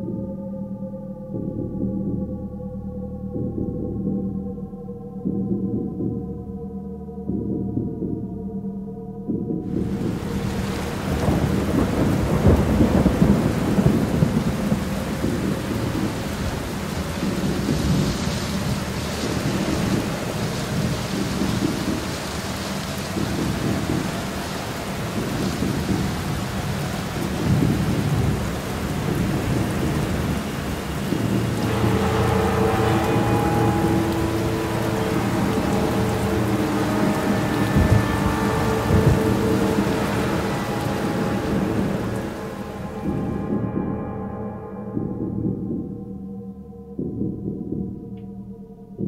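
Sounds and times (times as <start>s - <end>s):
steady rain: 9.6s - 44.3s
rolling thunder: 9.7s - 43.9s.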